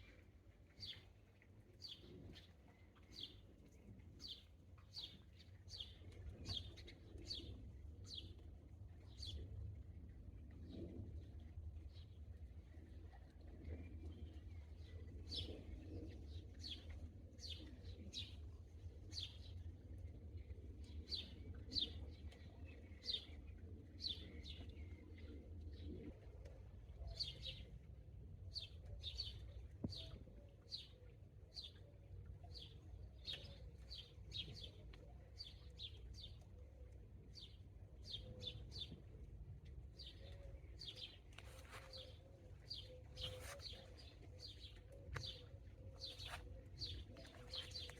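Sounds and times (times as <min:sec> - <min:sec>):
small birds chirping: 0:40.0 - 0:47.9.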